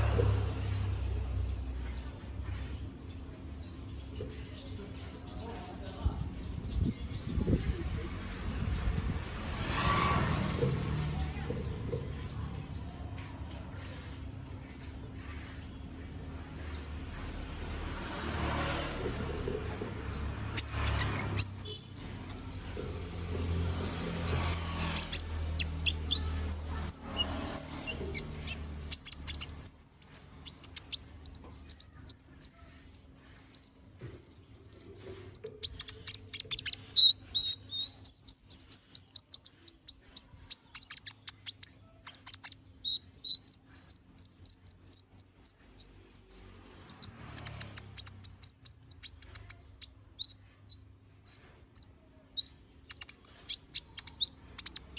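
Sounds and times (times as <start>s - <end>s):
bird singing high chirps: 19.9s - 33.8s, 35.0s - 54.9s.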